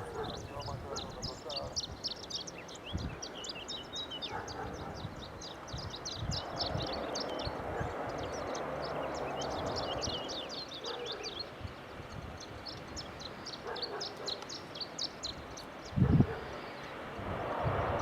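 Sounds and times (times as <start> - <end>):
songbirds chirping: 0.0 - 18.0.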